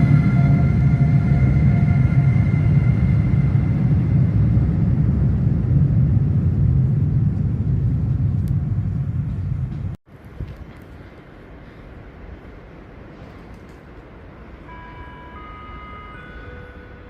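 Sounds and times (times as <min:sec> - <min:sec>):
whining tones: 0:00.0 - 0:06.7
electric locomotive rumbling: 0:00.0 - 0:17.0.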